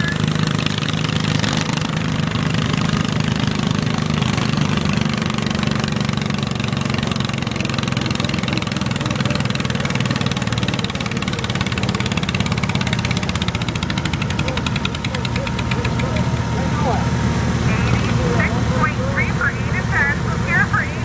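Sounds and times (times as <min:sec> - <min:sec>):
garden tractor engine running: 0:00.0 - 0:21.0.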